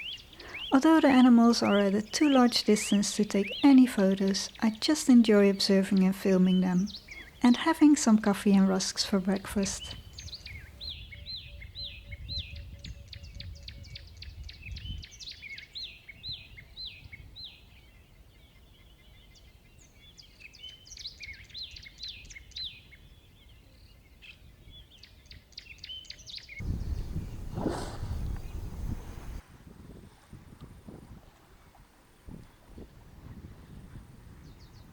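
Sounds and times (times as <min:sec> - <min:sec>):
birds chirping: 0:00.0 - 0:29.4.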